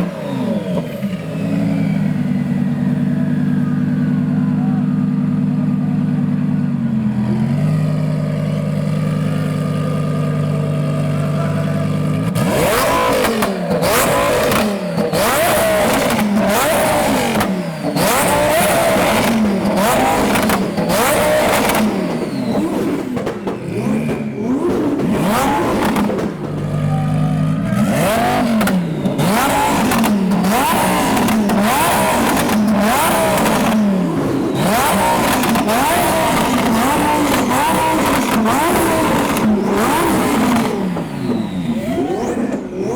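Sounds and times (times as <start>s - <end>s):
sports car engine revving: 0.0s - 42.9s
exhaust backfire pops and bangs: 8.2s - 42.9s.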